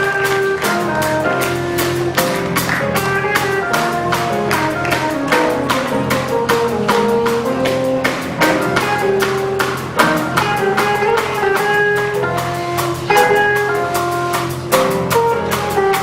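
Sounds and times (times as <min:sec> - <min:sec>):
band playing sustained notes: 0:00.0 - 0:16.0
crisp percussion strokes: 0:00.0 - 0:16.0.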